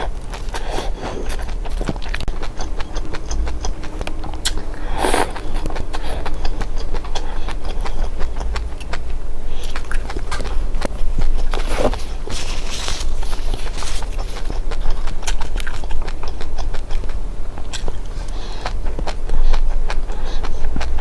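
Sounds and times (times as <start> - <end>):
seeds crunching being eaten: 0.0 - 21.0
rustling crunch: 1.2 - 16.4
steady low rumble: 1.2 - 21.0.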